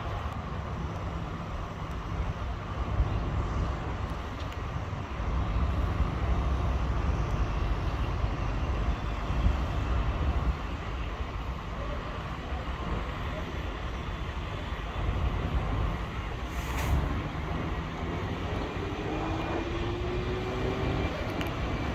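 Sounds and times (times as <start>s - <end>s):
road noise: 0.0s - 21.9s
vehicle engine rumbling: 0.0s - 21.9s.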